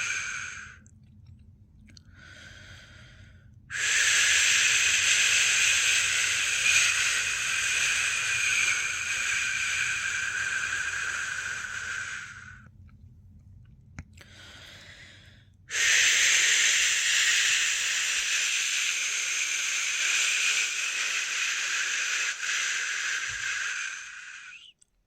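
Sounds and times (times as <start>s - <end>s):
person shushing: 0.0s - 0.8s, 3.7s - 12.6s, 15.7s - 24.7s.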